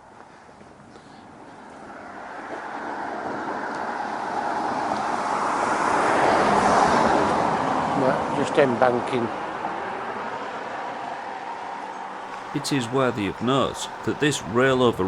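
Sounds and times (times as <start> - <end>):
road vehicle approaching: 12.3 - 15.0.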